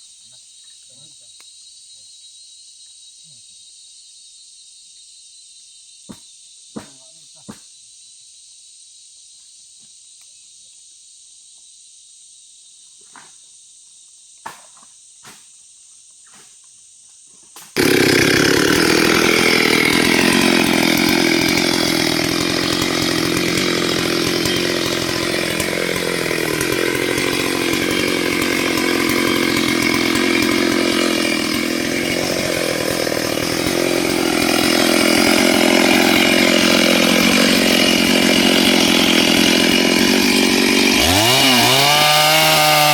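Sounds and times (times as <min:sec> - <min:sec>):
insects chirring: 0:00.0 - 0:34.1
chainsaw cutting wood: 0:17.6 - 0:42.9.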